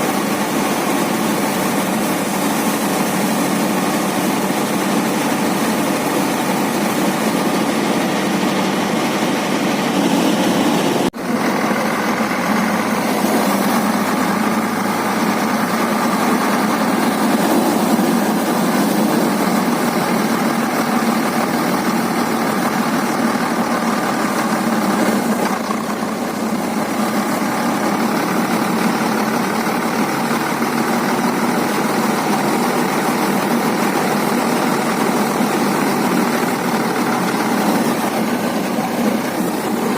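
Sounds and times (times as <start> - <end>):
harvesting machine engine running: 0.0 - 39.9.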